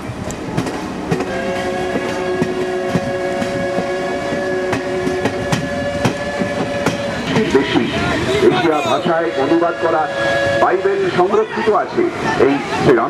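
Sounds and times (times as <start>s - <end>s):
train wheels clicking over rail joints: 0.0s - 8.0s
train horn chord: 1.2s - 11.8s.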